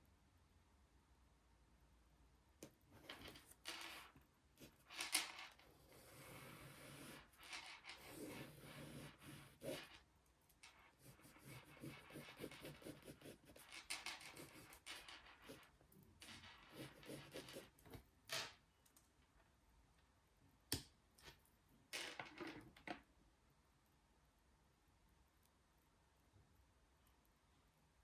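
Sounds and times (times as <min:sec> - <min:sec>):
scratching and rustling: 0:03.0 - 0:10.0, 0:10.6 - 0:18.0.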